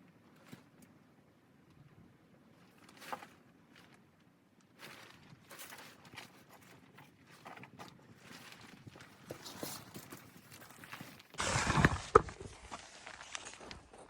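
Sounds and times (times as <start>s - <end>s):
rustling crunching handling noises: 1.8s - 14.0s.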